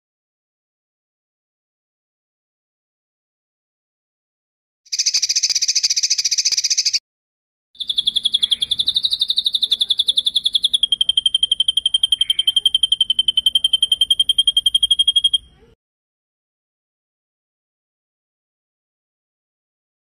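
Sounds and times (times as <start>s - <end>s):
songbird trilling: 4.9s - 7.0s, 7.8s - 15.7s.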